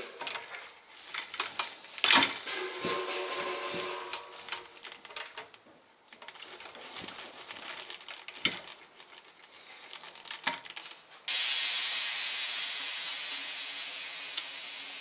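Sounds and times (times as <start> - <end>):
loud rushing hiss: 11.3 - 15.0.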